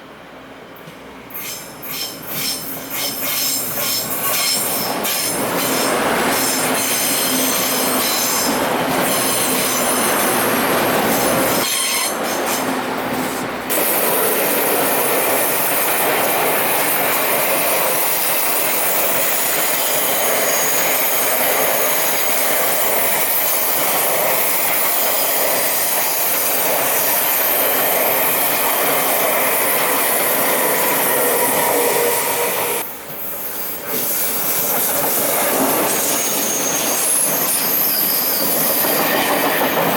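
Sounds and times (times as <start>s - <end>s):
train wheels on rails: 0.0s - 39.9s
wheels squealing: 33.4s - 39.9s.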